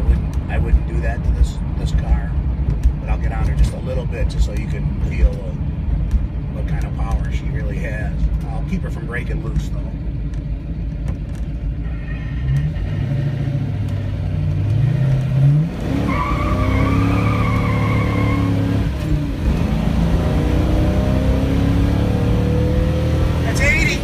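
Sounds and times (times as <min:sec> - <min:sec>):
car engine accelerating: 0:08.1 - 0:24.0.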